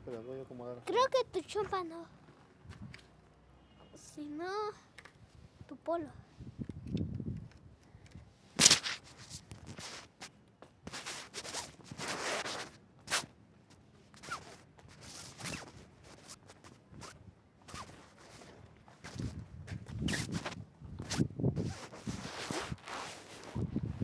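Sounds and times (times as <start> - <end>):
sharp crack: 8.6 - 9.0.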